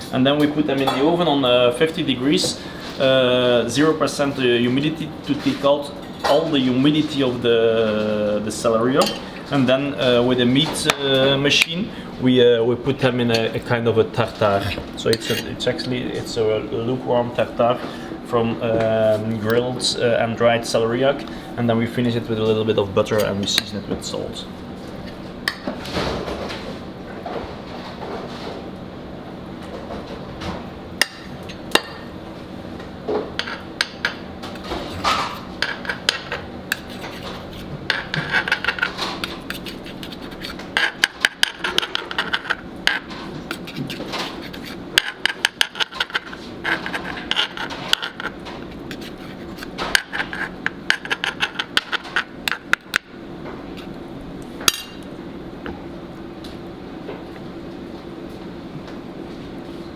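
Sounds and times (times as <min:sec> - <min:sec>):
steady kitchen hum: 0:00.0 - 0:59.9
kitchen utensils clicking and scraping: 0:14.2 - 0:16.0, 0:33.4 - 0:52.8.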